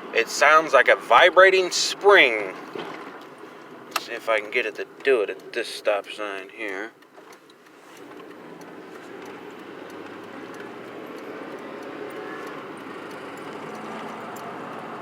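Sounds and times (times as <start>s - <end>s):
pickup truck engine accelerating: 7.4s - 15.0s.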